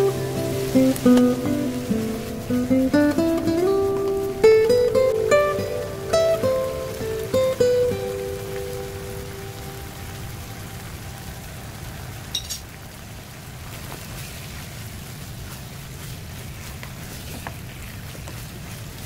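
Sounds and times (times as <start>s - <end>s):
guitar note: 0.0s - 10.8s
food sizzling in a pan: 0.0s - 19.0s.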